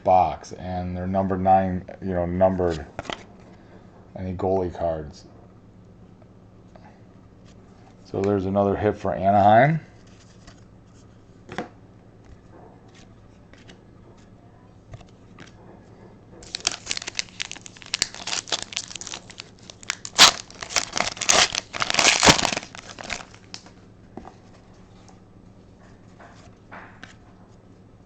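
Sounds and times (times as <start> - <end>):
foil wrapper tearing and crinkling: 16.4 - 23.7.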